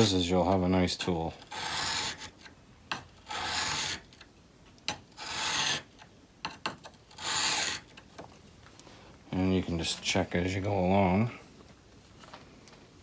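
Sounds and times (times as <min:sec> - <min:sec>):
chisel scraping on whetstone: 0:01.0 - 0:04.1, 0:04.9 - 0:08.0.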